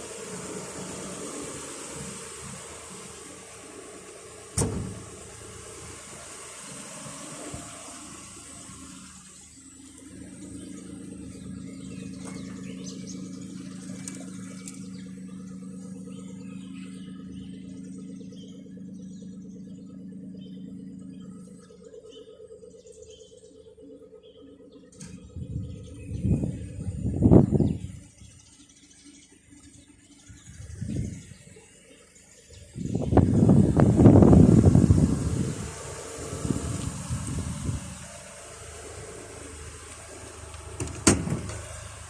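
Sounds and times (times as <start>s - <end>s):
car engine idling: 0.0s - 42.0s.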